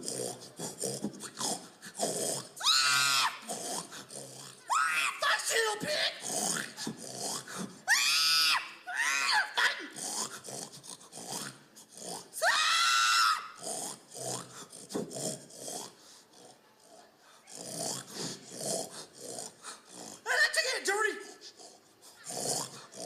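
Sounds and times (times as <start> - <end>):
pig-like grunts: 0.0 - 2.6, 3.4 - 4.7, 5.8 - 7.8, 9.8 - 12.4, 13.5 - 20.3, 21.2 - 23.0
person hog calling: 4.6 - 6.3.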